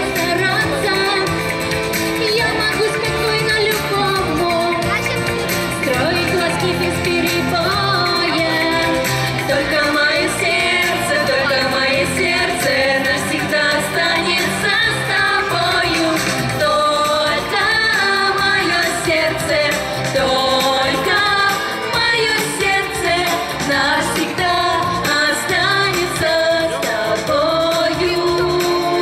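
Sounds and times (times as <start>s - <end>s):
pop-style music: 0.0s - 29.0s
person singing: 5.8s - 29.0s.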